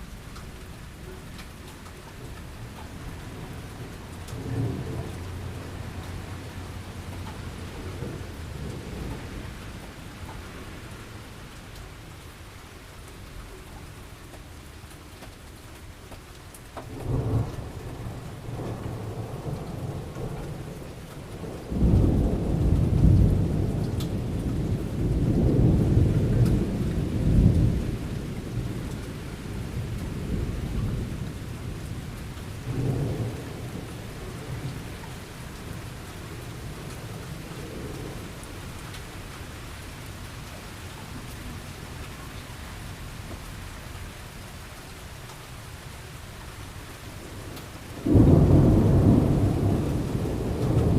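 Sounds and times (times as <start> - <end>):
steady rain falling: 0.0 - 50.9
rolling thunder: 16.9 - 38.4, 47.2 - 50.9
sharp thunder clap: 48.0 - 50.9.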